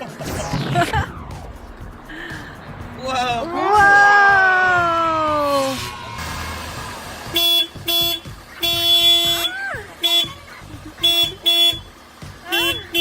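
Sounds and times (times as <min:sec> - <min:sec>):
vehicle horn toots: 0:07.2 - 0:10.4, 0:11.0 - 0:13.0.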